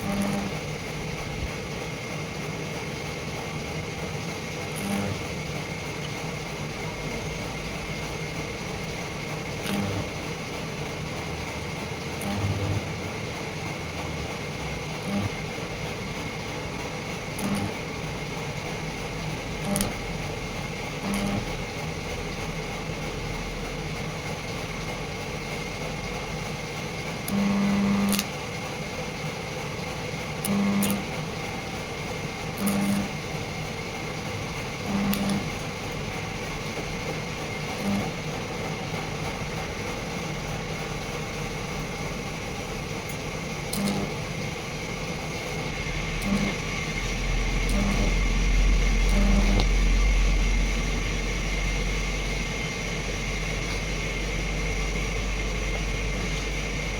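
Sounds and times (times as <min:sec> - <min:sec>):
short low buzzes: 0:00.0 - 0:00.6, 0:04.7 - 0:05.3, 0:09.6 - 0:10.2, 0:12.2 - 0:13.1, 0:15.0 - 0:15.6, 0:17.4 - 0:17.9, 0:19.6 - 0:20.0, 0:21.0 - 0:21.6, 0:27.3 - 0:28.3, 0:30.4 - 0:31.1, 0:32.6 - 0:33.2, 0:34.8 - 0:35.6, 0:37.6 - 0:38.2, 0:43.7 - 0:44.2, 0:45.4 - 0:52.2
machine whine: 0:00.0 - 0:56.9.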